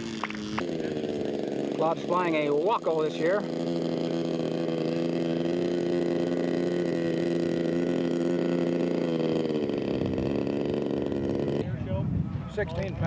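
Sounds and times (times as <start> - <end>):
model airplane engine buzzing: 0.0 - 13.0.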